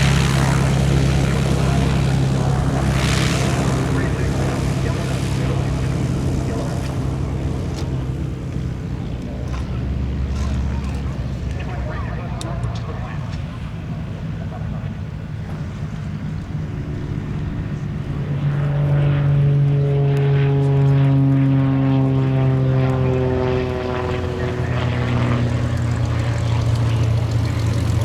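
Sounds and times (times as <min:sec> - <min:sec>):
propeller airplane flying past: 0:00.0 - 0:28.0.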